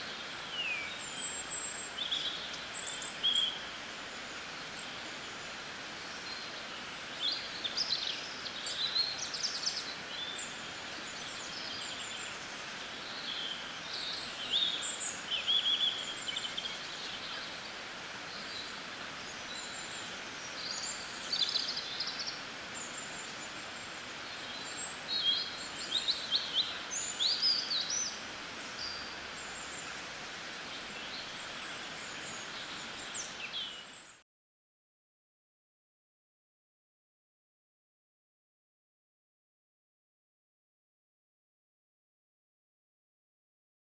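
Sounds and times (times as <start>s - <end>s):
steady background hiss: 0.0s - 34.2s
birds chirping and trilling: 6.2s - 34.2s.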